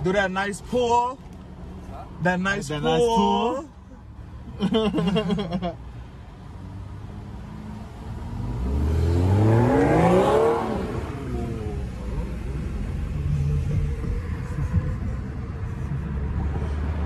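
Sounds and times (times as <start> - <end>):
car engine revving: 6.5 - 17.0.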